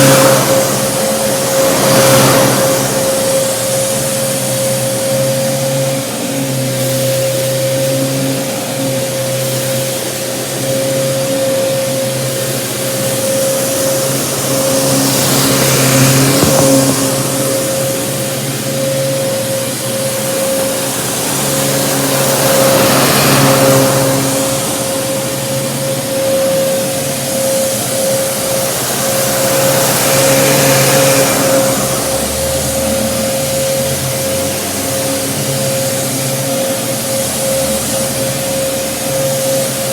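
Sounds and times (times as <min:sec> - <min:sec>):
rush of air: 0:00.0 - 0:06.0, 0:12.8 - 0:33.8
vacuum cleaner motor whine: 0:00.0 - 0:39.9.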